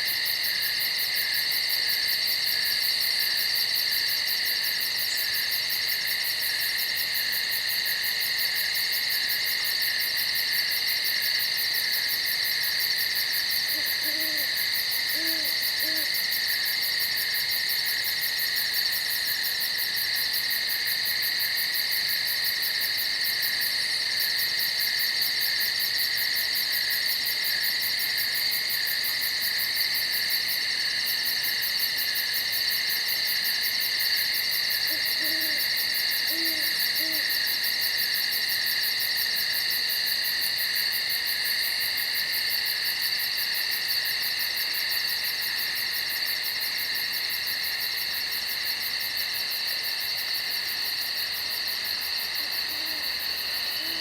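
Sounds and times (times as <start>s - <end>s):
night insects chorus: 0.0s - 54.0s
owl hooting: 13.7s - 14.5s, 15.1s - 16.1s, 34.9s - 35.7s, 36.3s - 37.4s, 52.7s - 53.0s, 53.8s - 54.0s.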